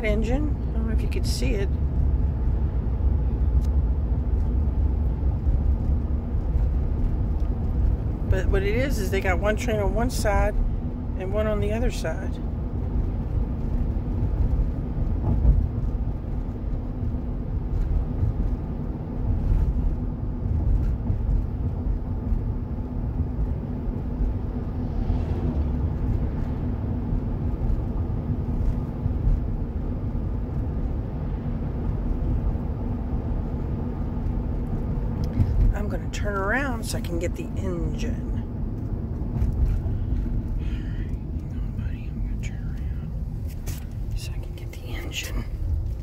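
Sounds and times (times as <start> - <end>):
freight train rumbling past: 24.7 - 26.7.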